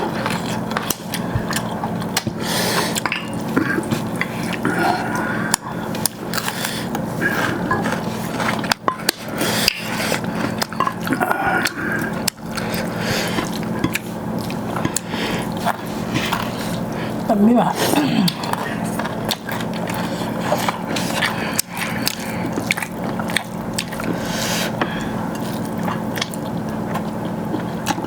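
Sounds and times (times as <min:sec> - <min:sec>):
food being stirred and eaten: 0:00.0 - 0:28.0.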